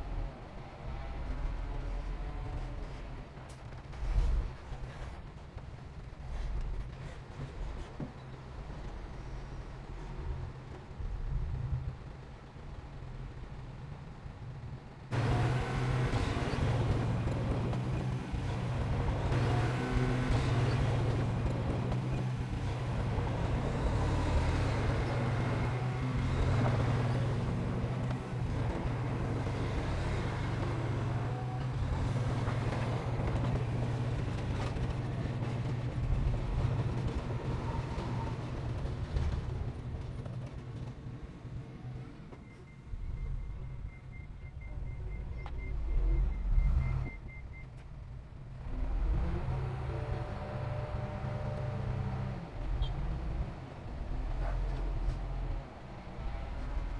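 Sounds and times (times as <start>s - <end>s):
heavy diesel engine running under load: 15.1s - 42.0s.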